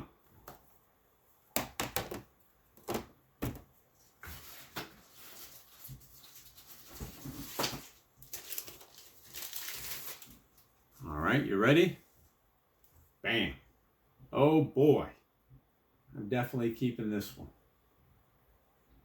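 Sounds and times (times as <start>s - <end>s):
rustling and shuffling: 2.3s - 13.2s.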